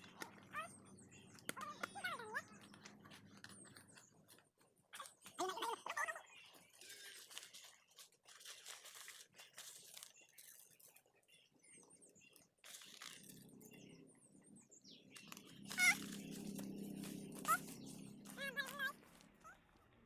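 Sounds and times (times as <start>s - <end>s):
high bird chirps: 10.2s - 19.6s.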